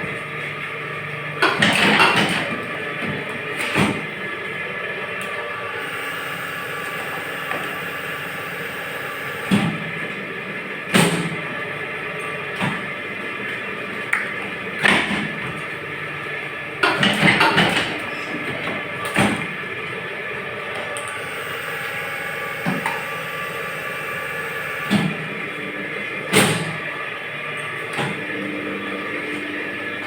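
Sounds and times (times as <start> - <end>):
moulding machine humming: 0.2 - 10.8, 19.7 - 30.0.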